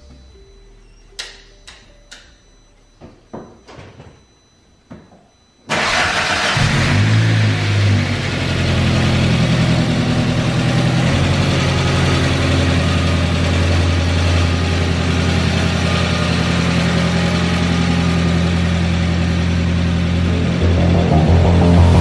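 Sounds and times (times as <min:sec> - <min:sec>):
car engine idling: 0:05.7 - 0:22.0.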